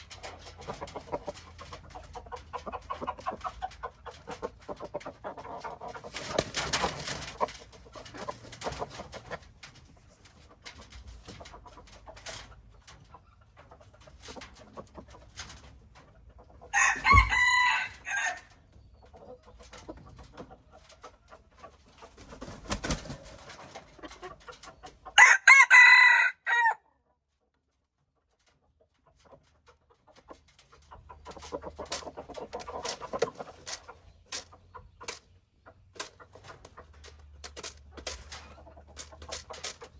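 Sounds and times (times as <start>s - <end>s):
chicken clucking: 0.0s - 39.9s
rooster crowing: 16.7s - 18.5s, 25.2s - 26.8s.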